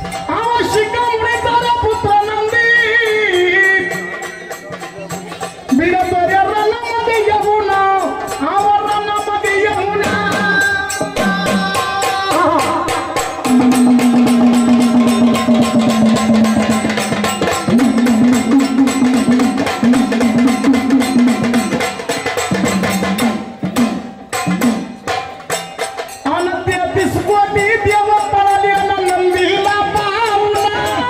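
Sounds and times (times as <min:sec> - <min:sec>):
fast hand-drum strokes: 0:00.0 - 0:31.0.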